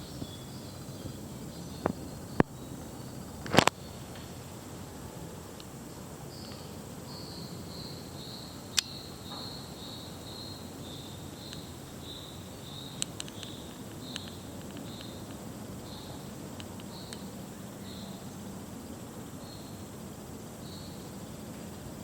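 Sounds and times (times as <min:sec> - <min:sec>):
cricket chirping: 0:00.0 - 0:22.0
faint high hiss: 0:00.0 - 0:22.0
sharp clicks: 0:13.0 - 0:15.4.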